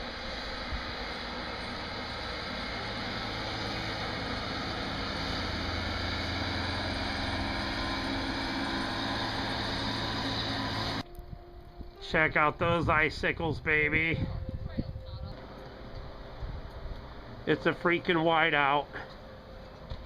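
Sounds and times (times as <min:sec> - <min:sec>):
vehicle engine running: 0:00.0 - 0:11.2, 0:15.3 - 0:20.0
broad rushing noise: 0:00.0 - 0:11.5.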